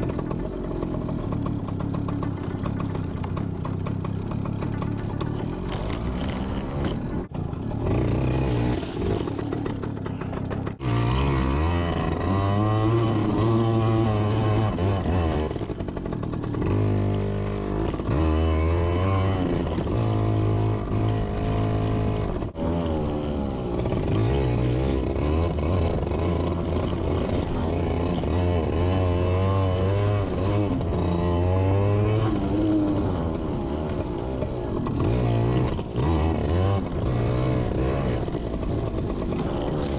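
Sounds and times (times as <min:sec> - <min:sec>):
dirt bike engine revving: 0:01.2 - 0:39.9.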